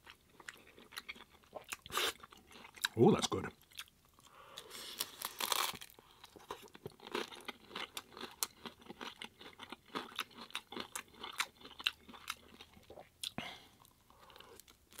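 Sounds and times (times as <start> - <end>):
crunchy chewing: 3.7 - 15.0
bite into crisp taco shell: 4.8 - 7.2.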